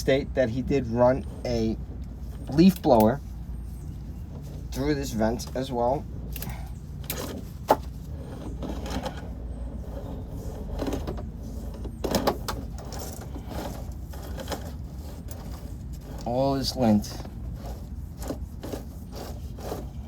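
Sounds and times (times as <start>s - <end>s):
low steady hum: 0.0s - 20.0s
camera knocking and rubbing in duct: 6.9s - 12.7s.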